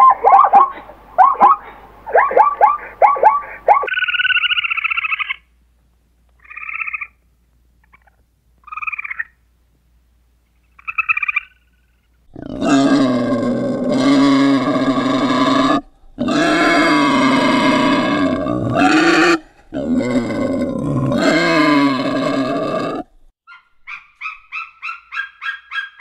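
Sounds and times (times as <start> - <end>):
wild boar deep calls: 0.0 - 5.4, 10.8 - 23.3.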